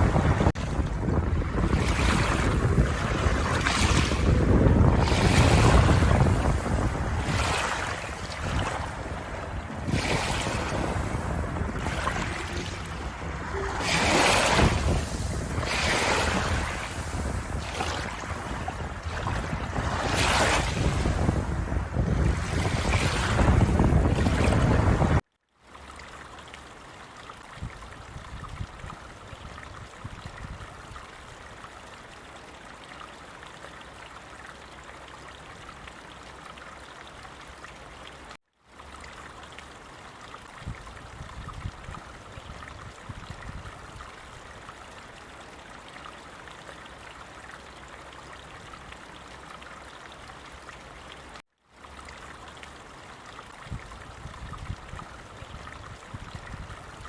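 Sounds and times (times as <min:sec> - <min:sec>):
stream water trickling and splashing: 0:00.0 - 0:57.0.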